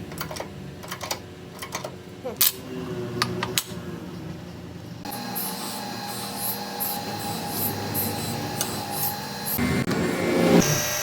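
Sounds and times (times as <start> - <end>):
metal lathe whining: 5.1 - 11.0
rhythmic scraping of cutting tool: 5.1 - 11.0.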